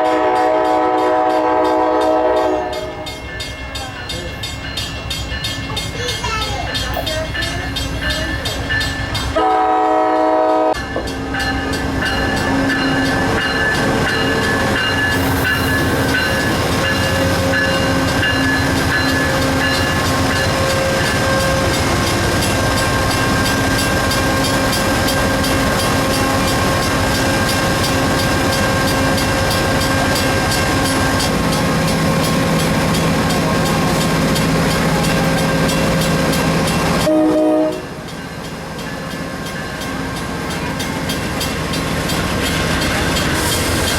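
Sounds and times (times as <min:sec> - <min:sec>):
train horn blast: 0:00.0 - 0:03.2, 0:09.4 - 0:10.8, 0:37.0 - 0:38.0
train wheels clattering on rails: 0:00.1 - 0:43.9.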